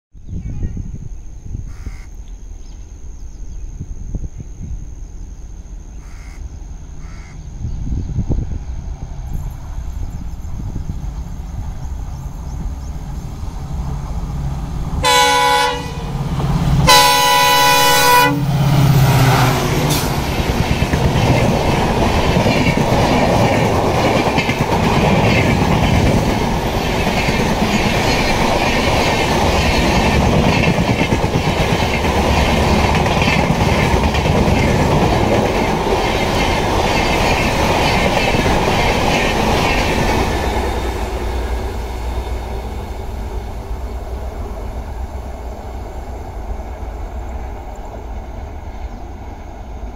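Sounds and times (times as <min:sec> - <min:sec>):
locomotive horn blasts: 0:15.0 - 0:16.2, 0:16.8 - 0:18.6
train wheels clacking on track: 0:15.0 - 0:49.3.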